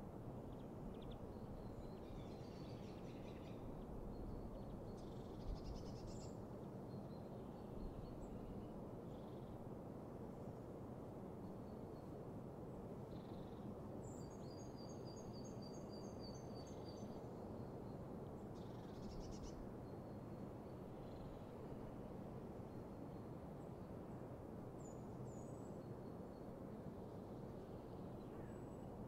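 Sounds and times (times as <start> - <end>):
low background hiss: 0.0 - 29.0
faint songbirds calling: 0.4 - 9.6, 13.0 - 21.7, 24.8 - 29.0.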